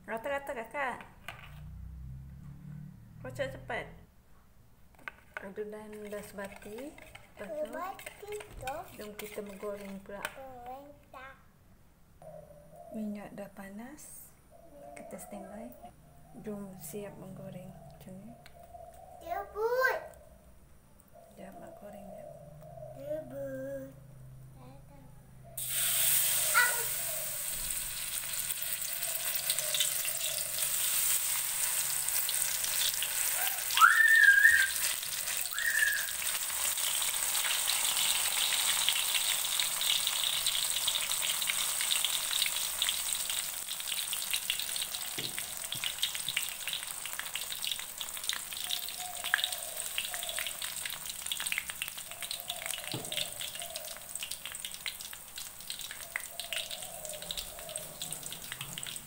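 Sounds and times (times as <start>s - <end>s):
food sizzling in hot oil: 25.6s - 59.0s.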